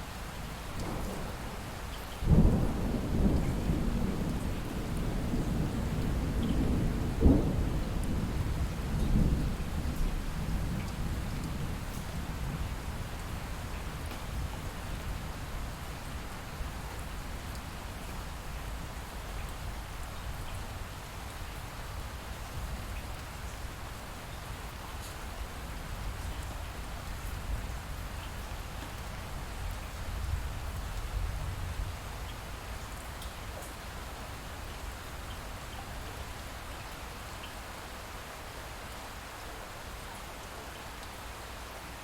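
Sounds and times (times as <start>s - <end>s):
light rain falling: 0.0s - 42.0s
raindrop ticks: 0.7s - 2.4s, 10.0s - 12.1s, 33.0s - 33.8s.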